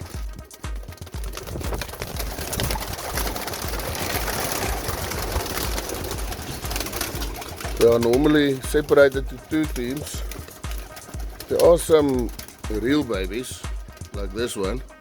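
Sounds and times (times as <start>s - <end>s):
pigeon wings flapping: 0.0s - 15.0s.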